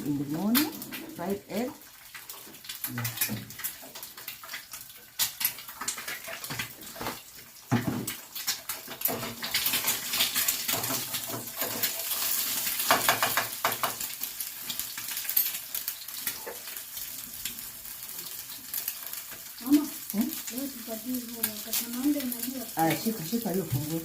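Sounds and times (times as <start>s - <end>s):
egg sizzling in hot oil: 0.0s - 24.0s
pan and utensils clattering: 0.3s - 16.8s.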